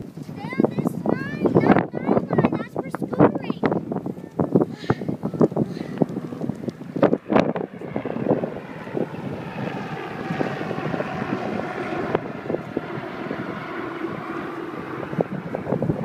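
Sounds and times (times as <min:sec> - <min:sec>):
wind buffeting microphone: 0:00.0 - 0:16.0
gusty thumps: 0:00.2 - 0:16.0
engine drone: 0:05.4 - 0:16.0.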